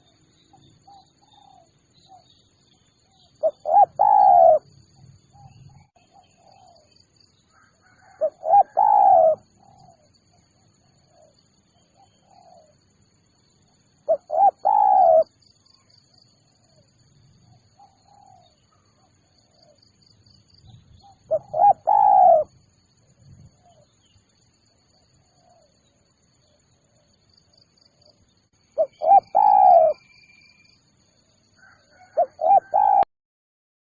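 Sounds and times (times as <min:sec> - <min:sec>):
dove cooing: 0:03.4 - 0:04.7, 0:07.9 - 0:10.1, 0:12.0 - 0:12.8, 0:14.1 - 0:15.3, 0:17.8 - 0:19.8, 0:21.0 - 0:22.5, 0:28.8 - 0:30.2, 0:31.6 - 0:33.1.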